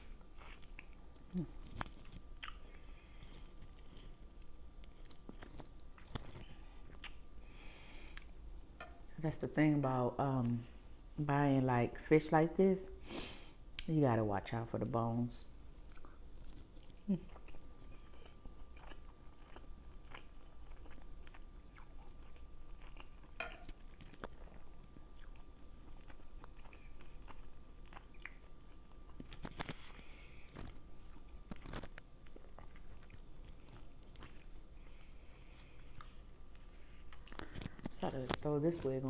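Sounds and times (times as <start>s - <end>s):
faint steady hum: 0.0s - 39.0s
wet mouth chewing and smacking: 0.3s - 7.2s, 15.9s - 35.0s.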